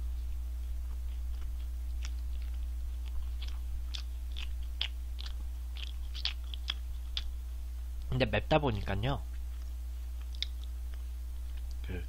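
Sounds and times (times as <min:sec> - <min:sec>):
low electrical hum: 0:00.0 - 0:12.0
person chewing: 0:00.3 - 0:07.6, 0:08.7 - 0:12.0
wet clicks and crunches: 0:08.0 - 0:09.0, 0:09.6 - 0:11.9.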